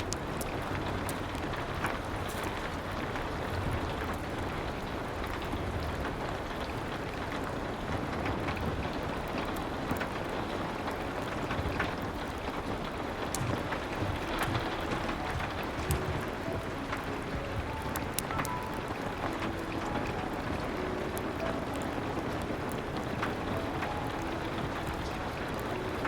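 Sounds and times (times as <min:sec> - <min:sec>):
rain pattering on window: 0:00.0 - 0:26.0
wood fire crackling: 0:00.0 - 0:26.0.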